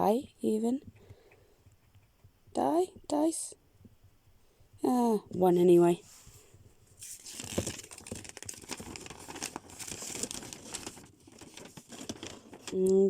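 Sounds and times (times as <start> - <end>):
packaging crinkling and rustling: 7.0 - 13.0.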